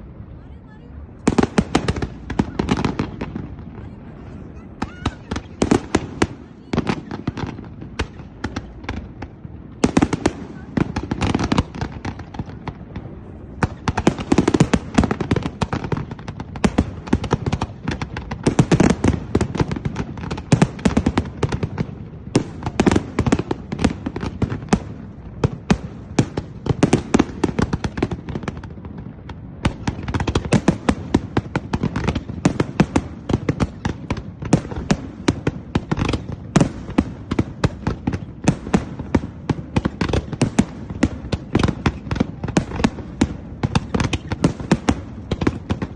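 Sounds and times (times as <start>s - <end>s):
low rumble of bursting shells: 1.1s - 4.1s
firework cracks and pops: 1.2s - 4.0s, 4.8s - 45.9s.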